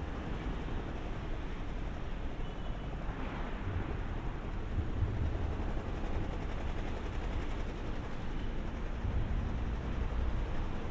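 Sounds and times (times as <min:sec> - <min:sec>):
electric train rumble: 0:04.2 - 0:10.9.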